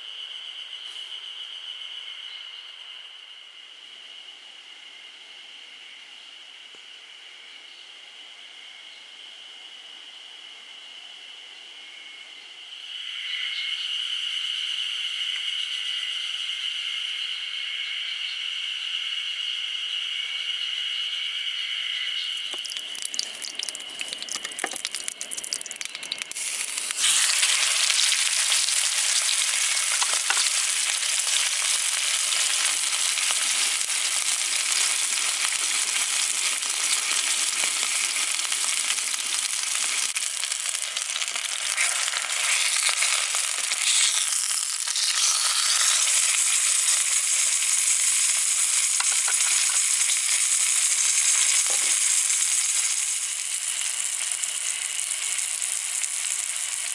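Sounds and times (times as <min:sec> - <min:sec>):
meat sizzling on a grill: 0:22.5 - 0:56.9.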